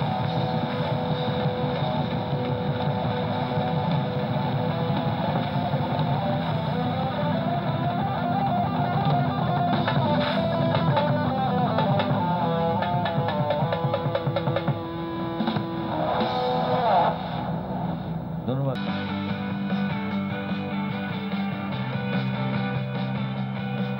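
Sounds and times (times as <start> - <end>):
plucked guitar melody: 4.2 - 15.8.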